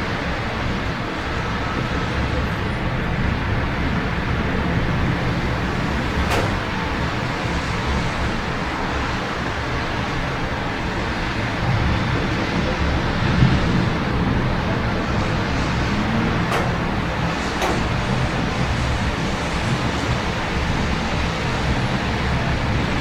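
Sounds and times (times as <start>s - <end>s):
road traffic noise: 0.0s - 23.0s
sharp click: 5.2s - 7.1s, 16.1s - 18.6s.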